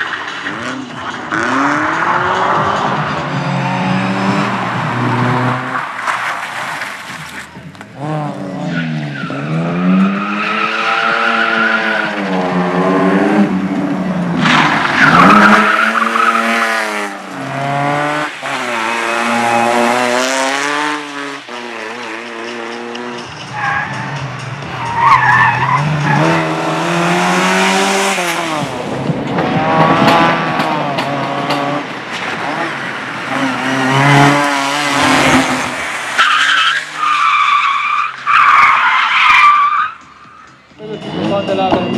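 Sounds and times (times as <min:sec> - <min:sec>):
car engine revving hard: 0:00.6 - 0:05.8, 0:14.4 - 0:23.2, 0:25.5 - 0:36.2
tyres squealing: 0:36.2 - 0:40.5.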